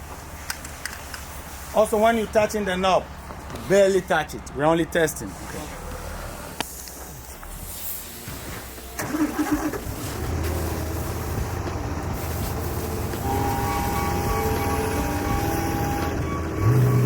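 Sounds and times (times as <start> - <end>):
excavator engine running: 8.2 - 17.0.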